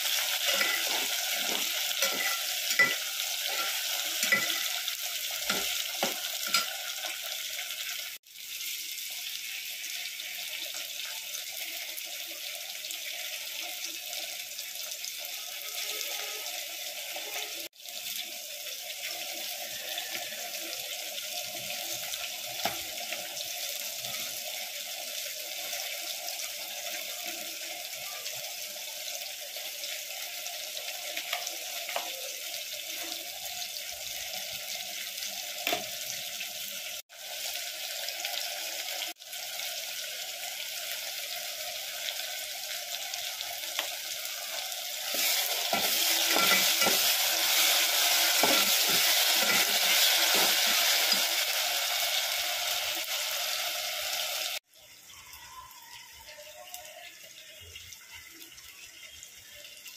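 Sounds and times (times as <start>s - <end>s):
food sizzling in hot oil: 0.0s - 59.9s
metal spatula stirring: 0.4s - 7.2s, 45.0s - 50.6s.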